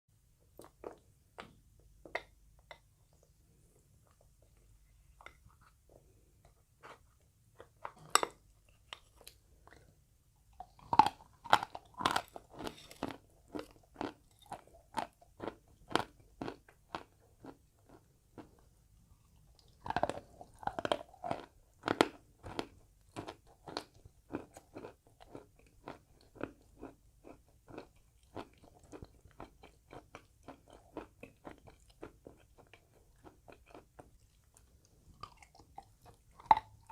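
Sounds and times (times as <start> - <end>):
chalk crunching being chewed: 10.6 - 18.6, 19.5 - 36.9.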